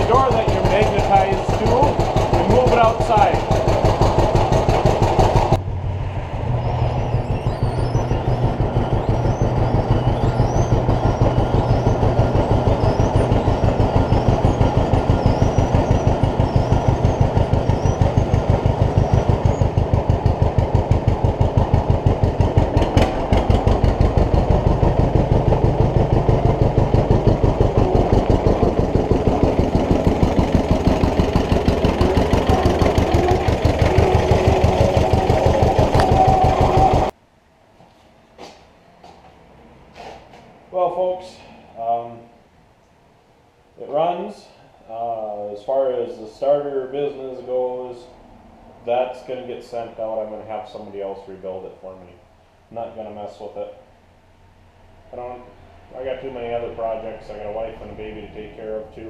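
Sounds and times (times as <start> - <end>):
two-cylinder tractor engine running: 0.0 - 37.2.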